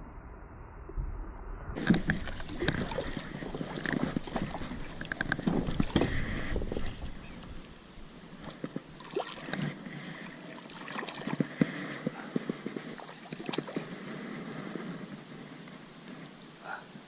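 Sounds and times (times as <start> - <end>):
water trickling and gurgling: 1.8 - 14.0.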